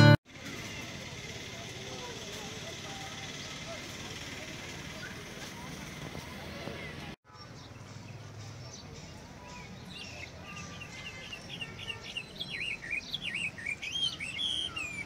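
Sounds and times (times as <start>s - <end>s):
songbirds chirping: 6.4s - 15.0s.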